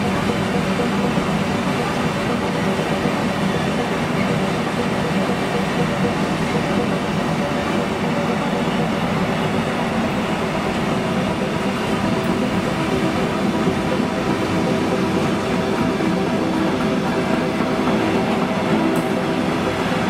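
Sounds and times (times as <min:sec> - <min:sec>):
train wheels on rail: 0:00.0 - 0:20.0.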